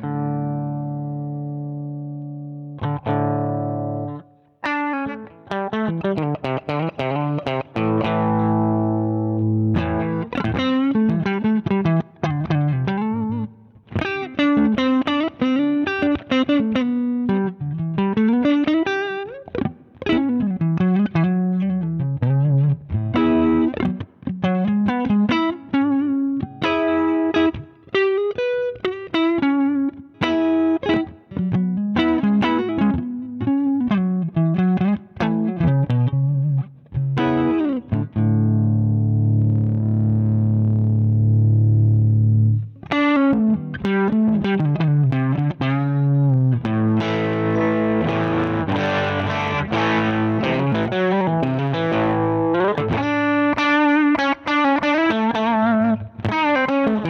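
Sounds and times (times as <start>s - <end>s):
overdriven electric guitar riffs: 0.0s - 57.0s.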